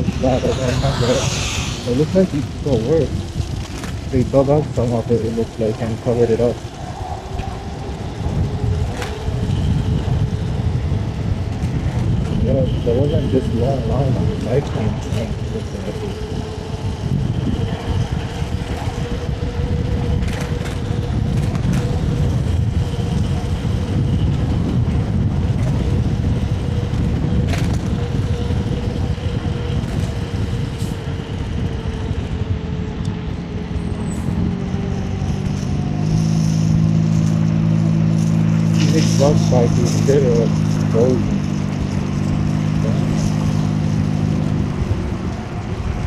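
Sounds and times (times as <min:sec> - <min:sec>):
low vehicle engine hum: 0:00.0 - 0:46.0
scooter motor whine: 0:00.0 - 0:46.0
wind on microphone: 0:00.0 - 0:46.0.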